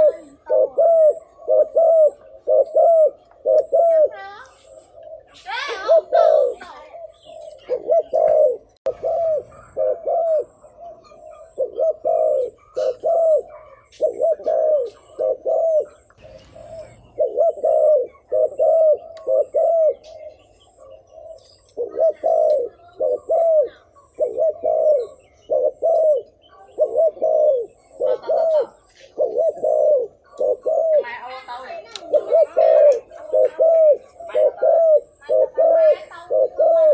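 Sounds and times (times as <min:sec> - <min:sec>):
dove cooing: 0:00.0 - 0:36.9.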